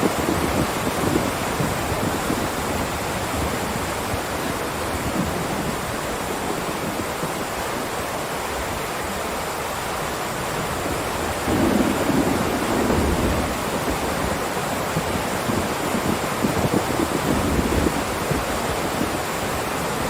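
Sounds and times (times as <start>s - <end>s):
heavy rain hissing: 0.0s - 20.0s.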